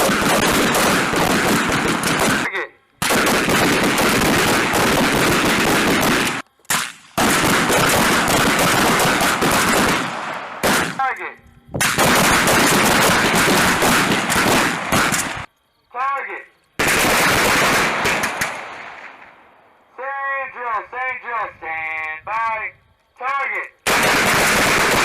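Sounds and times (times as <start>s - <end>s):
rapid rifle fire: 0.0s - 11.1s, 11.8s - 15.5s, 16.8s - 19.2s, 23.8s - 25.0s
person speaking: 11.0s - 11.4s, 20.0s - 23.8s.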